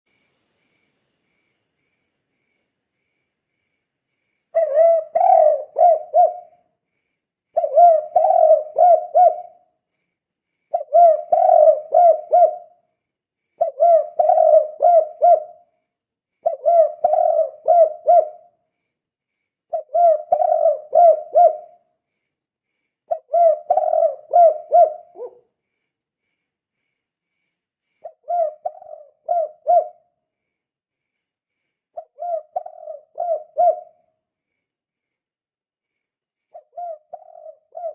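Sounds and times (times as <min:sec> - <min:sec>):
dove cooing: 0:04.5 - 0:06.6, 0:07.5 - 0:09.7, 0:10.7 - 0:12.8, 0:13.6 - 0:15.7, 0:16.4 - 0:18.5, 0:19.7 - 0:21.8, 0:23.1 - 0:25.4, 0:28.0 - 0:30.2, 0:32.0 - 0:34.1, 0:36.5 - 0:37.9.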